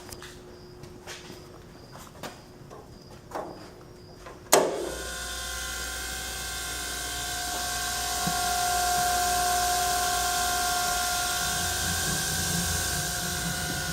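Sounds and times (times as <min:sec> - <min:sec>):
grinder motor humming and whining: 0:04.6 - 0:13.9.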